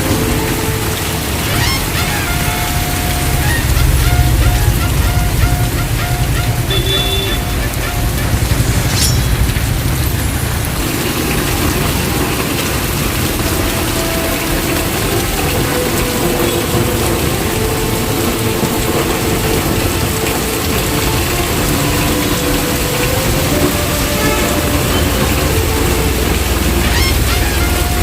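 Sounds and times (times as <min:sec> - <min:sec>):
deep rumble: 0:00.0 - 0:20.7
heavy rain pouring: 0:00.0 - 0:28.0.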